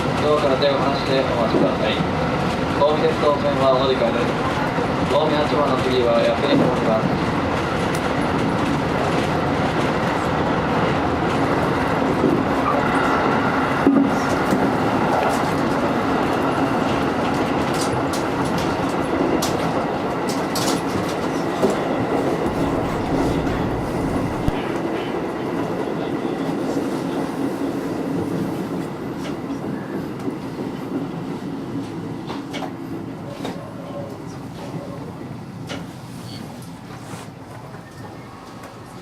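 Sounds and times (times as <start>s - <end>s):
train wheels rumbling on rail: 0.0s - 39.0s
train bump: 20.7s - 25.7s.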